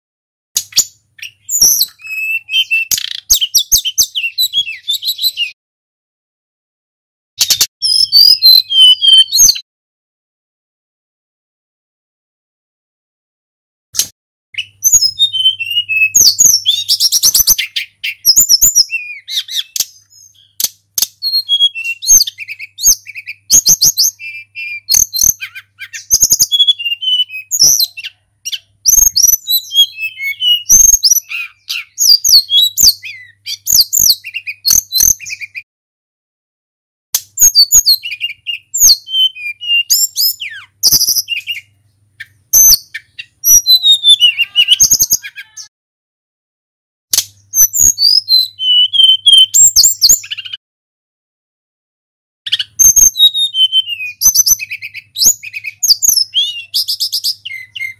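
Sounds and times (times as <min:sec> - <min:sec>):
sharp bird clicks: 0:00.6 - 0:05.0, 0:07.4 - 0:09.6, 0:14.0 - 0:15.1, 0:16.2 - 0:24.1, 0:24.9 - 0:26.5, 0:30.4 - 0:35.6, 0:37.2 - 0:39.0, 0:47.1 - 0:48.2
bird singing whistles and trills: 0:00.6 - 0:05.6, 0:07.4 - 0:09.6, 0:14.6 - 0:35.7, 0:37.4 - 0:45.7, 0:47.4 - 0:50.6, 0:52.5 - 0:57.9.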